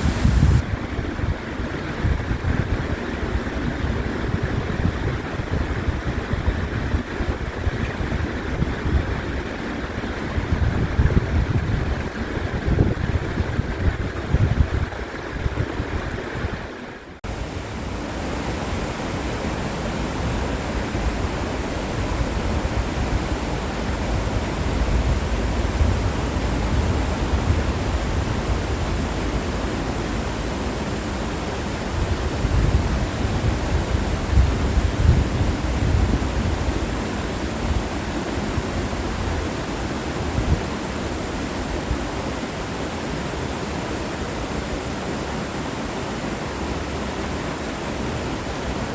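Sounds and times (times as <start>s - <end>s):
wind buffeting microphone: 0.0s - 42.1s
stream rushing: 0.0s - 48.9s.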